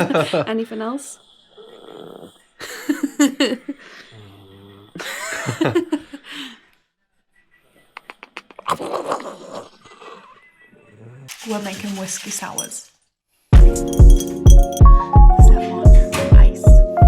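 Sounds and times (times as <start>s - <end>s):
dog vocalizing: 0.8s - 3.0s.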